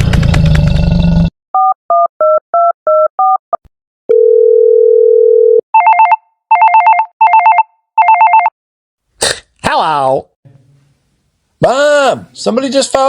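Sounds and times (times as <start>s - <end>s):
electronic phone ringing: 4.1s - 8.5s
steady phone tone: 4.1s - 8.5s
touch-tone dialing beeps: 4.1s - 8.5s.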